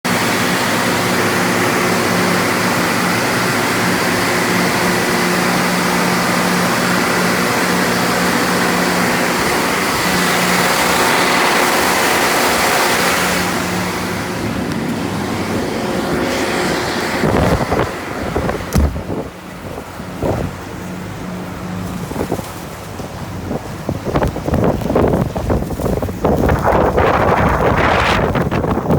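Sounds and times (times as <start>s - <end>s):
steady machine hum: 0.1s - 28.9s
strong wind rushing: 0.4s - 28.9s
wind gusts buffeting microphone: 0.4s - 28.9s.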